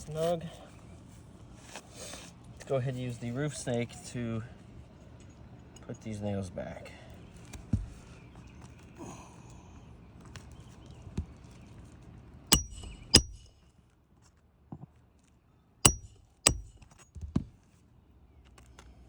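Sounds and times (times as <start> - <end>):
hammer striking metal: 12.5 - 13.5, 15.9 - 16.8.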